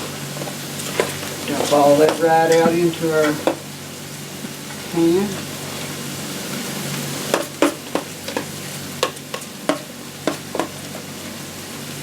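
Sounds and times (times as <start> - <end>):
vegetables sizzling in a skillet: 0.0 - 12.0.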